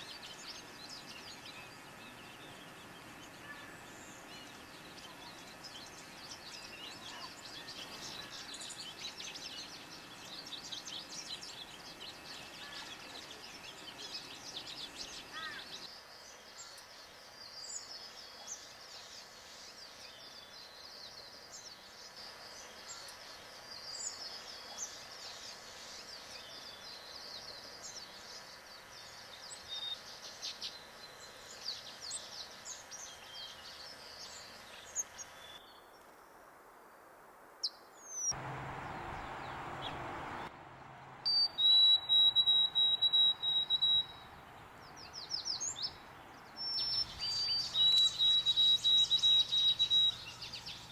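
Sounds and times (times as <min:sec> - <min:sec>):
small birds chirping and singing: 0:00.0 - 0:36.0, 0:41.3 - 0:50.9
outdoor background noise: 0:00.0 - 0:50.9.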